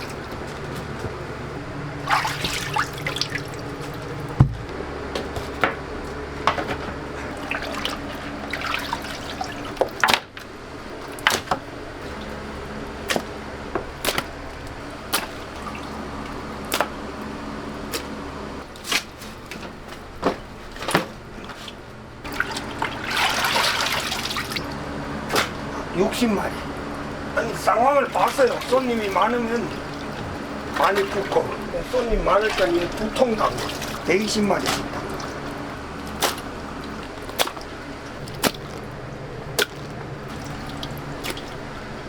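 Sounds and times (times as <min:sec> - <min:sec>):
steady low hum: 0:00.0 - 0:42.0
water dripping and splashing: 0:00.0 - 0:42.0
sharp knocks: 0:04.4 - 0:04.7.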